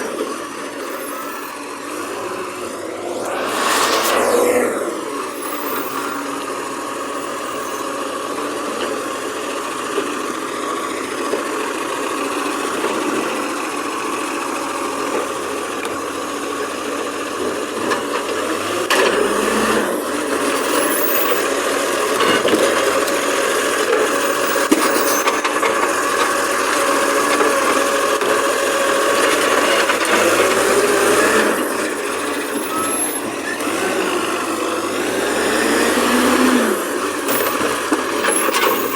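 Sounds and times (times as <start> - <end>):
garbage truck engine: 0.0 - 38.9
steady whine: 0.1 - 7.8.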